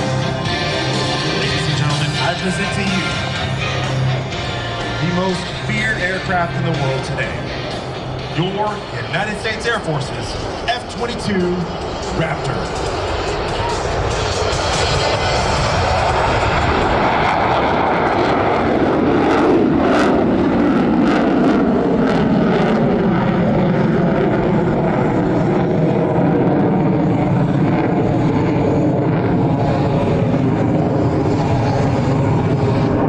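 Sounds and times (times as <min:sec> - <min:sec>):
jet roar passing: 0:00.0 - 0:33.0
jet engine crackle: 0:08.8 - 0:33.0.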